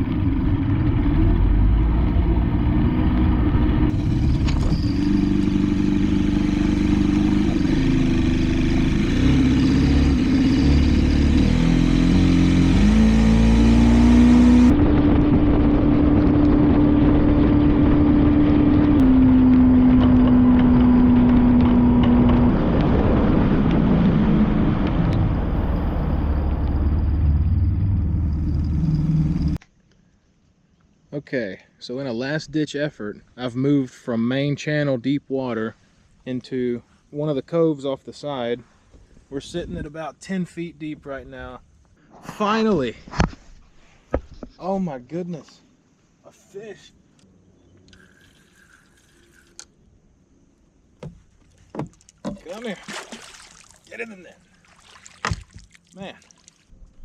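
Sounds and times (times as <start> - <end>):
wind noise: 13.6 - 28.9, 39.0 - 40.1
water noise: 47.8 - 49.7, 51.2 - 57.0
outboard motor running: 47.9 - 49.6.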